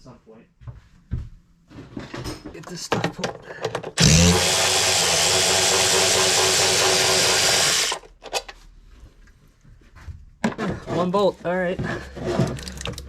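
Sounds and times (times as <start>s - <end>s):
cordless power tool running: 4.0s - 8.0s.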